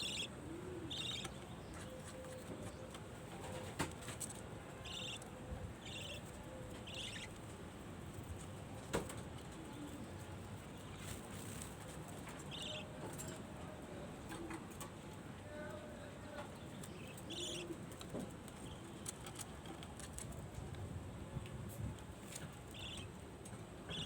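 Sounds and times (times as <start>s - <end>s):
budgerigars chirping: 0.0s - 0.3s, 0.9s - 1.3s, 4.8s - 5.2s, 5.8s - 7.4s.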